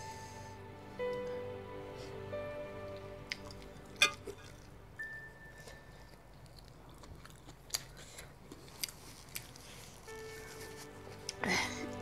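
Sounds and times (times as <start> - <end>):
person chewing: 3.3 - 11.4.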